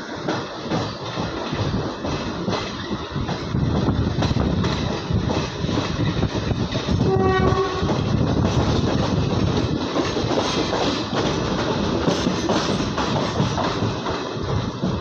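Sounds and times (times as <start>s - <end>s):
train wheels rumbling on track: 0.0s - 15.0s
locomotive horn: 7.0s - 8.0s.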